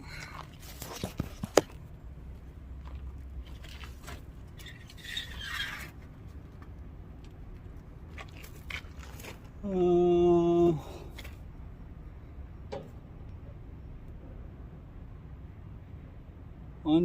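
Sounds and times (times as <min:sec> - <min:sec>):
steady low rumble: 0:00.0 - 0:05.0, 0:05.8 - 0:17.0
scraping rustle: 0:00.4 - 0:01.8, 0:02.8 - 0:06.6.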